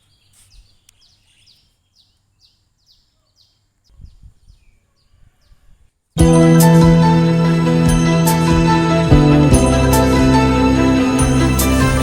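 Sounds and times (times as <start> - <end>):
small bird chirping: 0.0 - 6.0
loud background music: 6.2 - 12.0.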